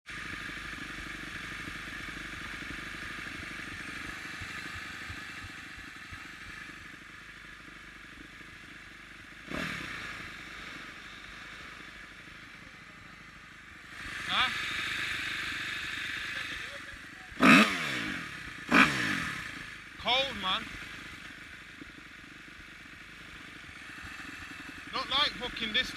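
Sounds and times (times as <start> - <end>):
dirt bike engine running: 0.0 - 25.9.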